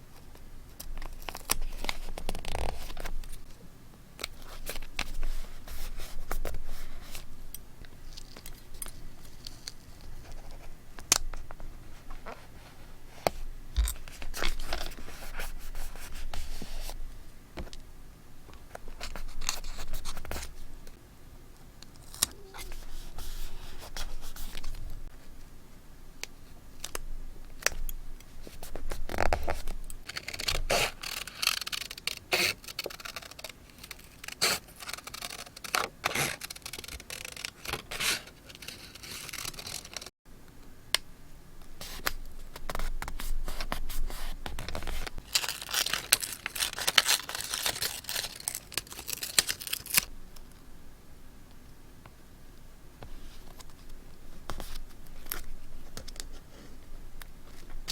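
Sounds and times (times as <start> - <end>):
paper rustling: 28.4 - 40.1, 41.8 - 50.1.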